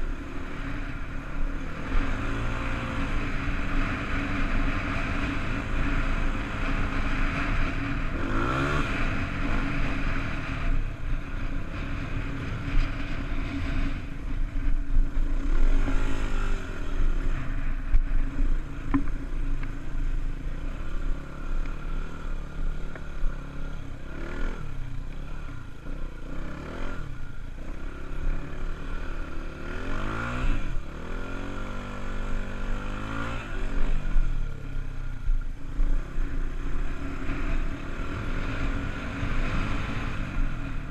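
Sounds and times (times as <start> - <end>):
dirt bike engine revving: 1.7 - 14.0.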